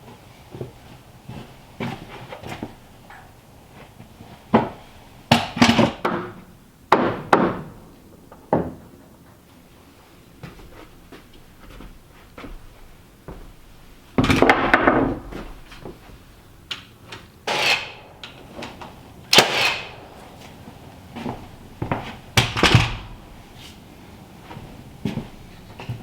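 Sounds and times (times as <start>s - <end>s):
wood and tool bangs: 4.5s - 7.8s, 17.5s - 23.7s.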